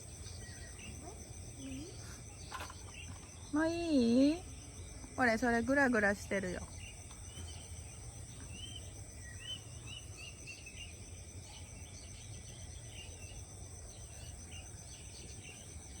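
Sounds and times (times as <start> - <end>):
bird chirping: 0.0 - 16.0
insects droning: 0.0 - 16.0.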